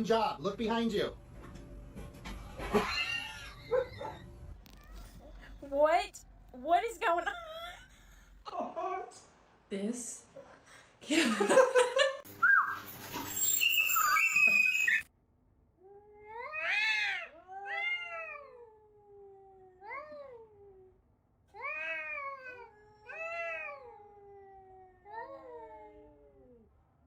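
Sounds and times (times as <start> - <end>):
cat meowing: 15.8 - 20.9.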